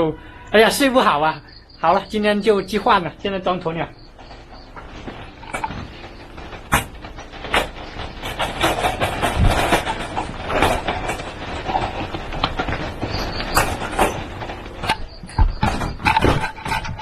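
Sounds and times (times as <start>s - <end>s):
knocking and clattering: 3.9s - 17.0s.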